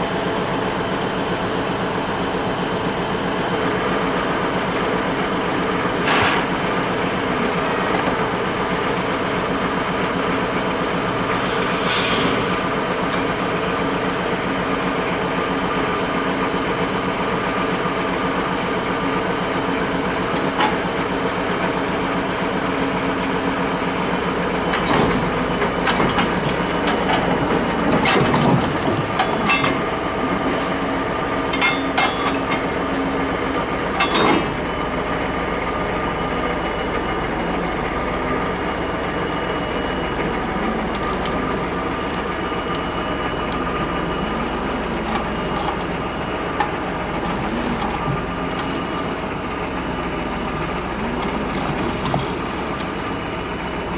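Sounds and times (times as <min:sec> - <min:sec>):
creaks cracks and knocks: 0:40.3 - 0:43.6.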